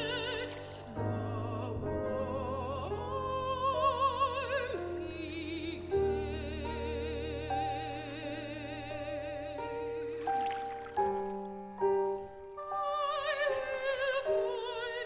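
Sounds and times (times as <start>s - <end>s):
piano chords: 0.0s - 15.0s
soprano singing with vibrato: 0.0s - 15.0s.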